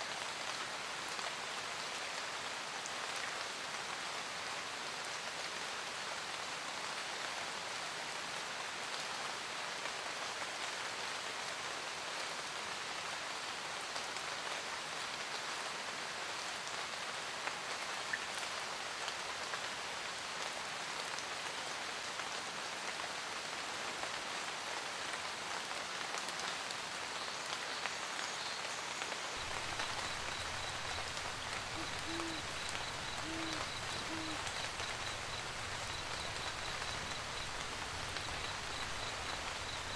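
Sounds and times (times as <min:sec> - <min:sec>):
steady rain pattering: 0:00.0 - 0:39.9
owl hooting: 0:29.4 - 0:39.9.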